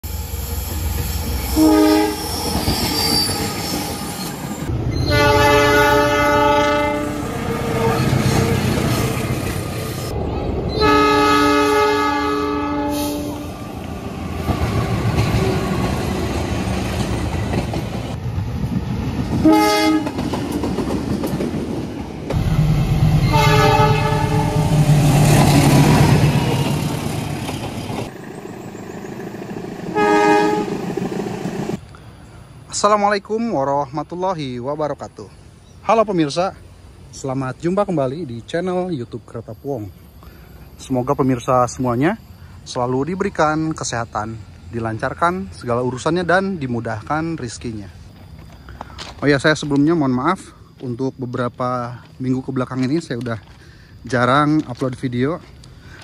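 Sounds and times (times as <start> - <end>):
locomotive horn blasts: 1.6 - 2.3, 5.0 - 9.2, 10.8 - 13.5, 19.4 - 20.1, 23.1 - 24.8, 30.0 - 30.7.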